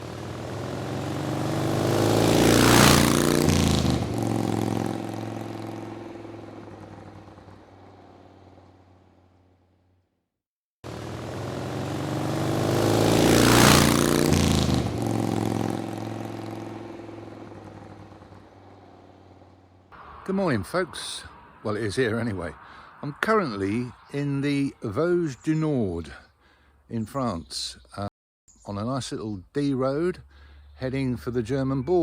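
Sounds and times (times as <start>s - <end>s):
vehicle driving past at speed: 0.0s - 9.4s, 10.9s - 24.5s.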